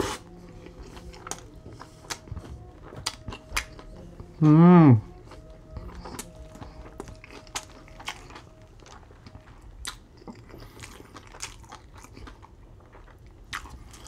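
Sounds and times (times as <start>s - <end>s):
person chewing a burger: 0.0s - 14.0s.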